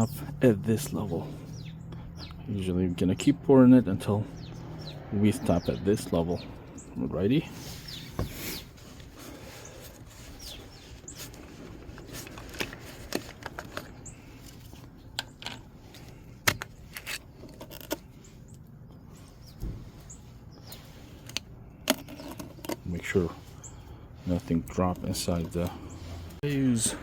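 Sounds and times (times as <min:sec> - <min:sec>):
bird chirps: 0:00.0 - 0:11.8, 0:18.1 - 0:21.1, 0:22.0 - 0:27.0.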